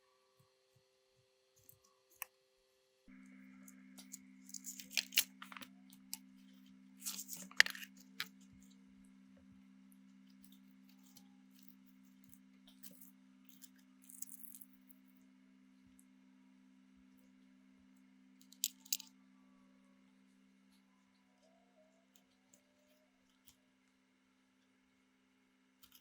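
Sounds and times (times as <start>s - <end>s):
low electrical hum: 2.9s - 26.0s
small parts clicking and scraping: 3.6s - 8.8s, 10.3s - 15.0s, 18.4s - 19.1s, 25.8s - 26.0s.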